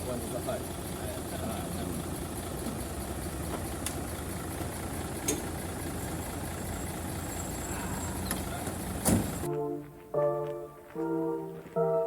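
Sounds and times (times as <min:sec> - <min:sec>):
truck diesel engine running: 0:00.0 - 0:09.5.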